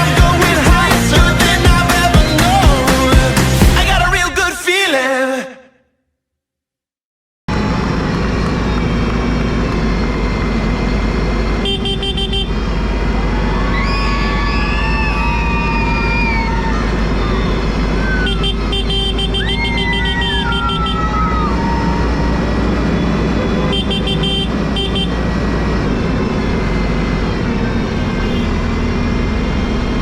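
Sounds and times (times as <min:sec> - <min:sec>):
tractor engines running: 0:00.0 - 0:04.3, 0:07.5 - 0:30.0
horns tooting: 0:08.4 - 0:30.0.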